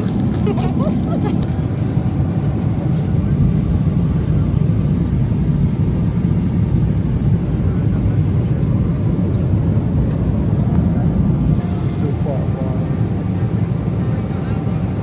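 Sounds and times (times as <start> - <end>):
airliner cabin drone: 0.0 - 15.0.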